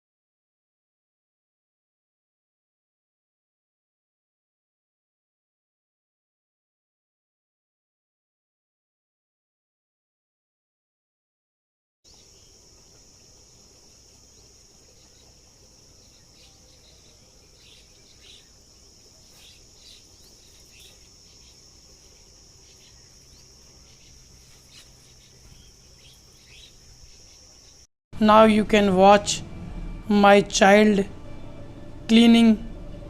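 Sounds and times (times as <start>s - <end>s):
high-pitched insect chorus: 12.1s - 27.9s.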